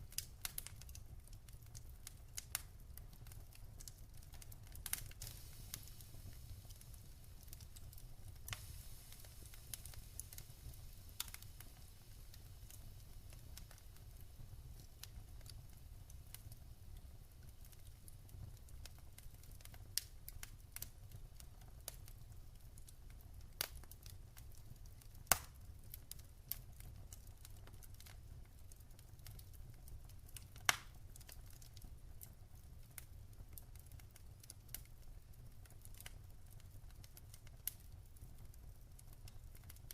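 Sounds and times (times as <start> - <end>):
wood fire crackling: 0.0 - 39.9
sharp fire pops: 4.8 - 15.6, 25.2 - 25.6, 30.6 - 31.0.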